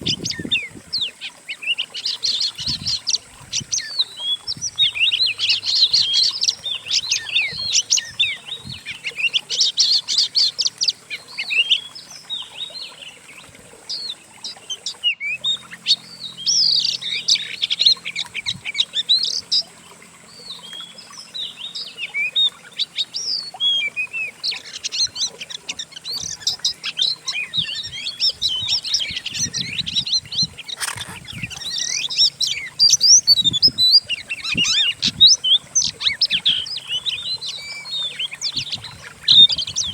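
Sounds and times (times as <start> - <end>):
songbirds chirping and trilling: 0.0 - 39.9
sharp click: 30.8 - 31.2.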